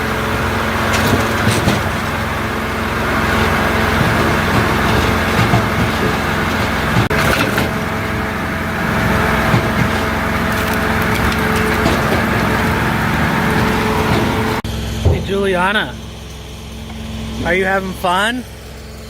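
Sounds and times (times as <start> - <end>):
diesel engine running: 0.0 - 19.0
wood cracking and splintering: 3.3 - 14.6.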